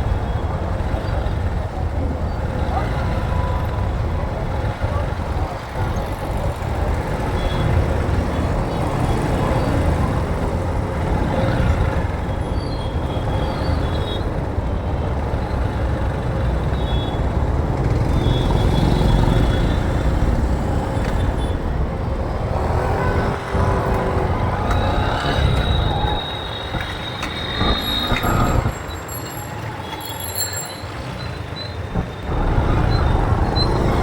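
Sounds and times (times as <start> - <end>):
motorbike road rumble: 0.0 - 34.0
high squeals: 21.3 - 34.0.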